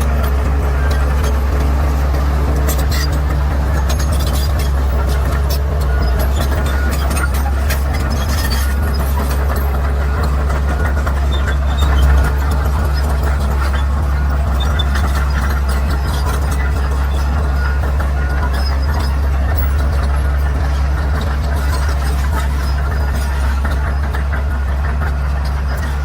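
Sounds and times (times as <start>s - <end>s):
bulldozer diesel engine running: 0.0s - 26.0s.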